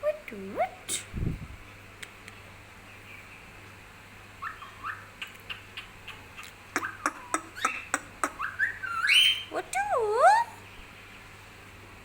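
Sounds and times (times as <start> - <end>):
bird chirping: 4.4 - 11.3.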